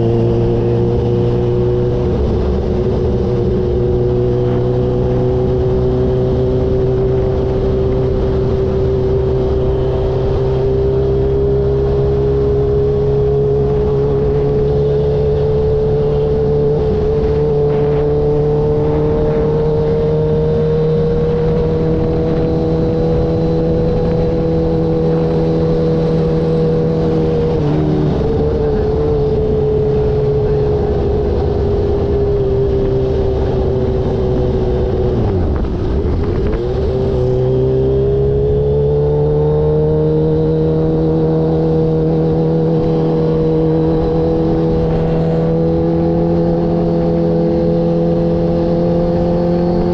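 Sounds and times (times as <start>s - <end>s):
motorcycle engine cruising: 0.0s - 49.9s
wind rumbling on microphone: 0.0s - 49.9s.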